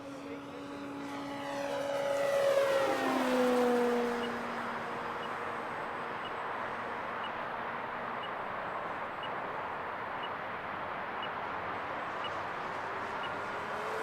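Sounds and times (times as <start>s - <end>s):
distant model plane motor whine: 0.0s - 7.4s, 11.3s - 14.0s.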